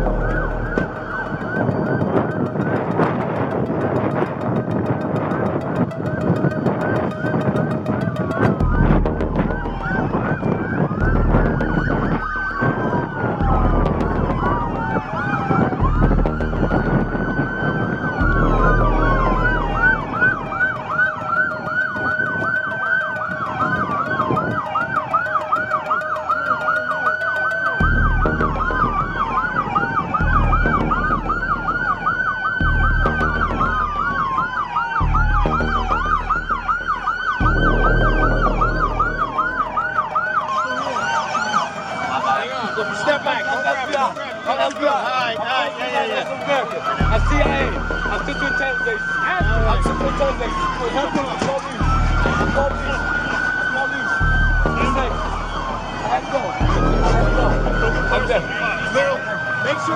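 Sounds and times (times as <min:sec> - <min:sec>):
low rumble: 0:00.0 - 0:01.5, 0:08.6 - 0:15.0, 0:15.8 - 0:20.7, 0:27.8 - 0:40.0, 0:54.2 - 0:55.9
siren yelping warble: 0:00.0 - 0:59.9
sirens wailing: 0:00.0 - 0:59.9.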